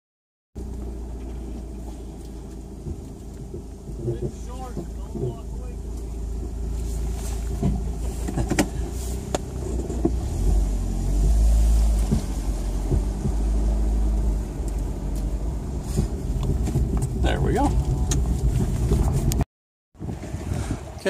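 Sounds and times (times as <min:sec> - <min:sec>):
vehicle engine rumbling: 0:00.6 - 0:21.0.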